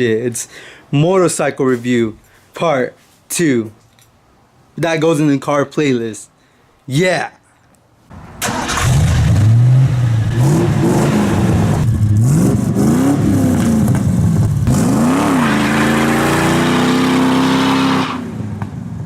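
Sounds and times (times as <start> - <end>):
motorcycle engine starting: 8.2 - 12.7
motorcycle engine revving: 8.7 - 18.0.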